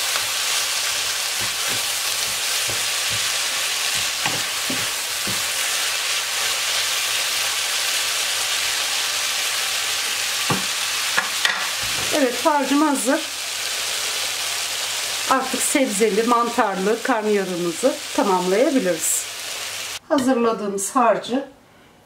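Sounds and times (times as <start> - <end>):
vegetables sizzling in a wok: 0.0 - 20.0
wooden spatula tapping and scraping: 1.4 - 5.5.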